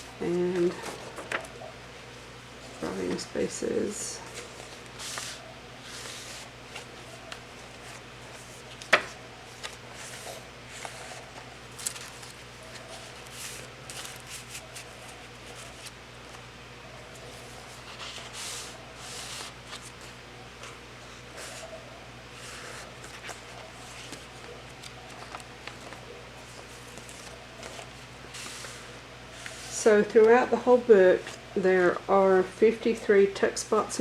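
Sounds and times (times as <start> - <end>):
paper pages turning: 4.3 - 16.4, 17.1 - 20.2, 22.4 - 28.8.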